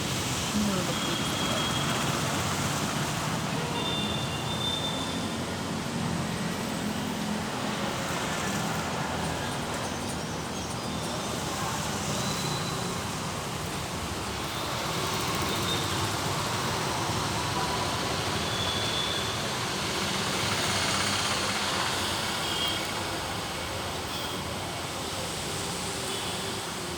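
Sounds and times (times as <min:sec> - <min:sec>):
traffic passing in rain: 0:00.0 - 0:26.9.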